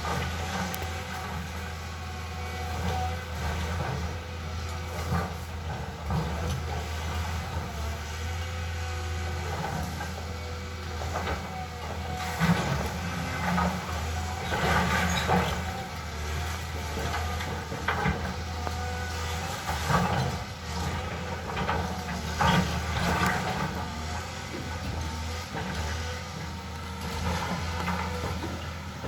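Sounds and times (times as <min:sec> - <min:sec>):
excavator diesel engine running: 0:00.0 - 0:29.0
knocks and scrapes: 0:11.0 - 0:29.0.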